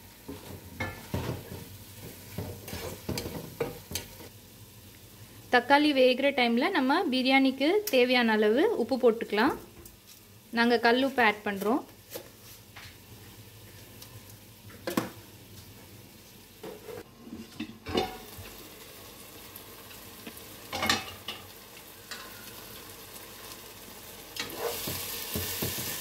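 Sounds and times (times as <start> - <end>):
food sizzling in oil: 0.0 - 26.0
spoon and lid clattering on pot: 20.7 - 21.4.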